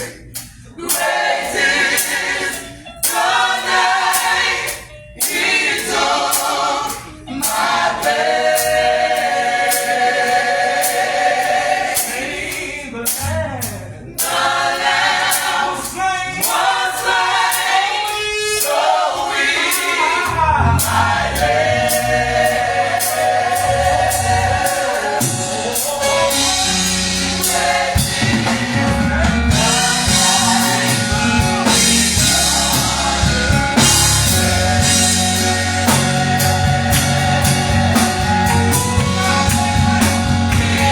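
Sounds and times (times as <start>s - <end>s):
gospel choir singing: 0.0s - 40.9s
bass guitar: 13.2s - 14.0s, 20.3s - 40.9s
drums: 20.8s - 40.9s.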